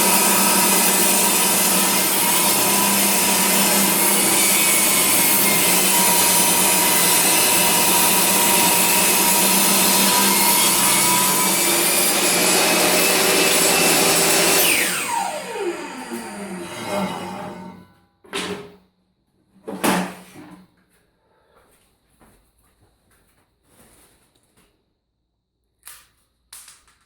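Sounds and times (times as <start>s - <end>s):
table saw ripping board: 0.0s - 18.8s
saw motor spinning down whine: 9.3s - 17.8s.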